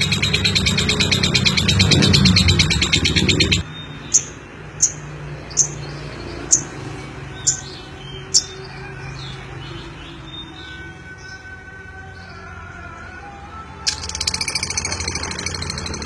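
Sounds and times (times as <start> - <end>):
lovebird chirps: 0.0 - 5.8, 13.9 - 16.0.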